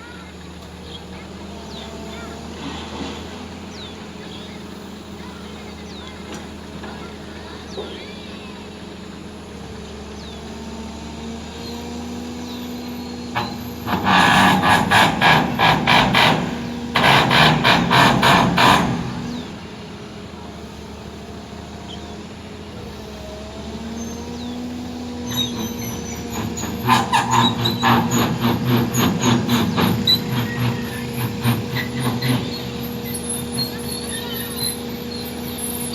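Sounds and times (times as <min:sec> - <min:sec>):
heavy diesel machinery running: 0:00.0 - 0:35.9
rhythmic mechanical clatter: 0:13.3 - 0:19.8, 0:25.4 - 0:35.8.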